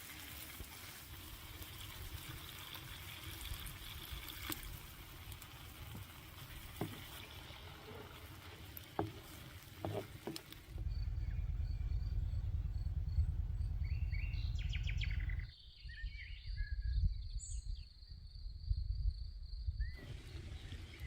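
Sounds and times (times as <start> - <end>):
wind rumble on microphone: 10.7 - 21.0
birds chirping: 10.8 - 16.6.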